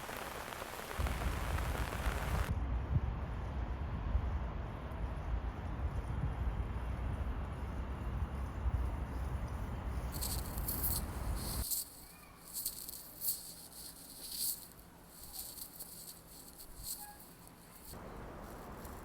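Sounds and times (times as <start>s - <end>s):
rain pattering: 0.0s - 2.5s
wind buffeting microphone: 0.0s - 11.6s.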